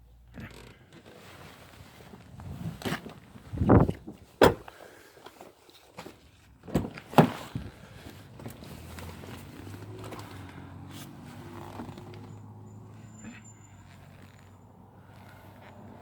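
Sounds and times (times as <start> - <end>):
sharp knocks and thumps: 4.4 - 4.7.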